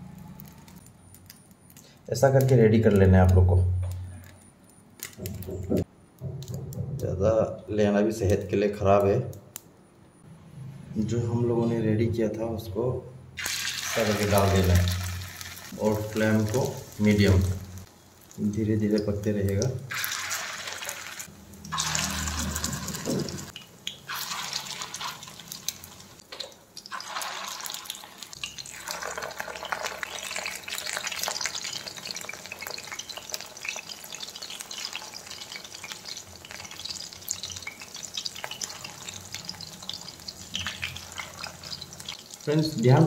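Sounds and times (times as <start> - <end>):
chicken frying in oil: 13.4 - 43.0.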